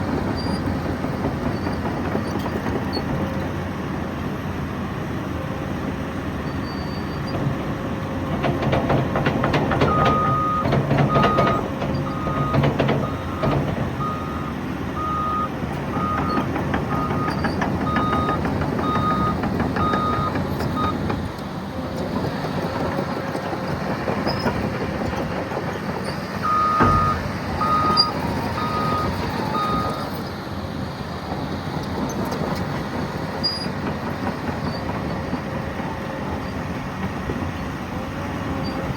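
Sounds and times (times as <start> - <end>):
diesel engine running under load: 0.0 - 38.9
reverse alarm beeping: 9.9 - 21.0, 26.4 - 30.1.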